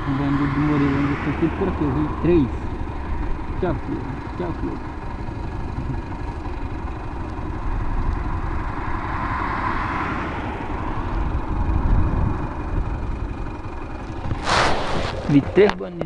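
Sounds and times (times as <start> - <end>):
vehicle passing by: 0.0 - 4.7, 7.8 - 13.0, 14.0 - 15.8
highway traffic rumble: 0.0 - 16.0.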